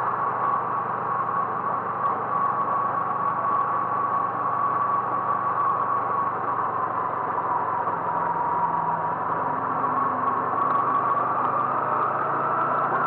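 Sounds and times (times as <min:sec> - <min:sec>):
engine whine: 0:00.0 - 0:13.0
vehicle engine running: 0:00.0 - 0:13.0.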